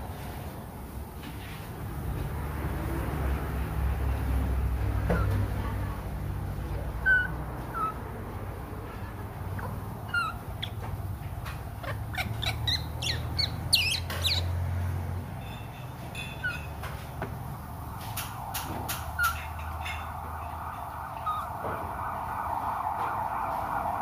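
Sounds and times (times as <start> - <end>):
birds chirping: 6.6 - 17.6, 18.3 - 21.8.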